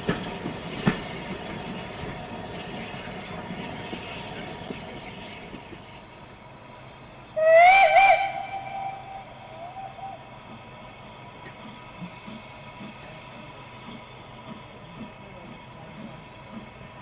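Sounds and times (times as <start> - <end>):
train running noise: 0.0 - 17.0
steam locomotive whistle: 7.4 - 10.3.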